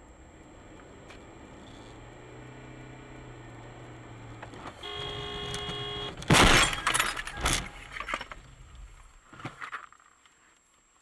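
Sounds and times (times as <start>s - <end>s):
car crash: 4.5s - 9.2s
car horn: 4.7s - 6.4s
debris clattering: 6.2s - 8.6s
glass breaking: 6.3s - 8.2s.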